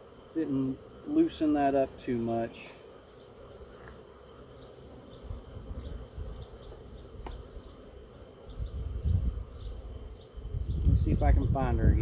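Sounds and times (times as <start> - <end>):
honeybees buzzing: 0.0 - 12.0
low rumbling on microphone: 10.4 - 12.0.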